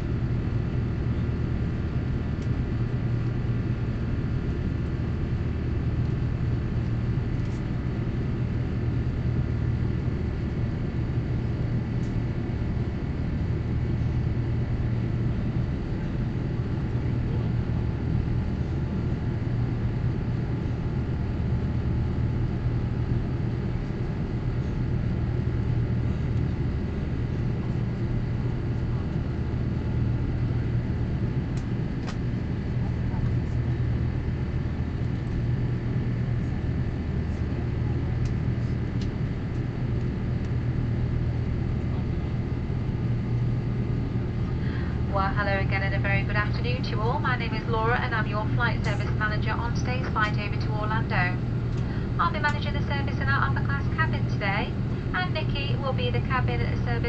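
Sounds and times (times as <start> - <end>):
airflow over fuselage: 0.0 - 57.0
faint steady whine: 0.0 - 57.0
jet engine drone: 0.0 - 57.0.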